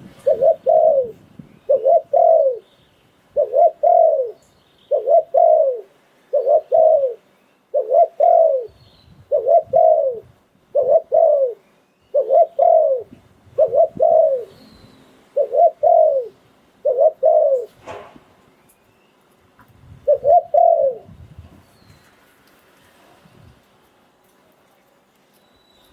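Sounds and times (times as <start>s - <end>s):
dove cooing: 0.0s - 2.6s, 3.3s - 14.6s, 15.2s - 17.8s, 20.0s - 21.2s.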